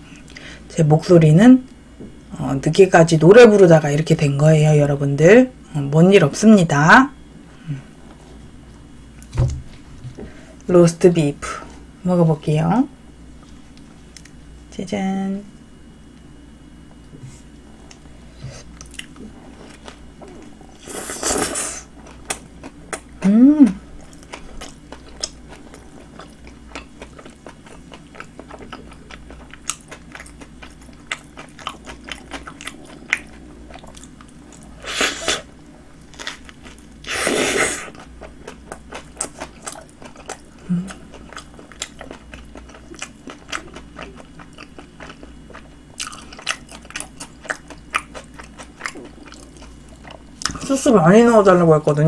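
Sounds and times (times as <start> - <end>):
chewing sandwich: 23.9 - 50.6.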